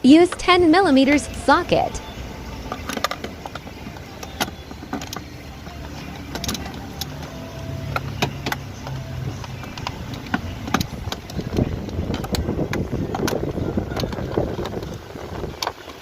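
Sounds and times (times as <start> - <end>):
low background hum: 0.0 - 16.0
ratchet metallic clicks: 2.0 - 16.0.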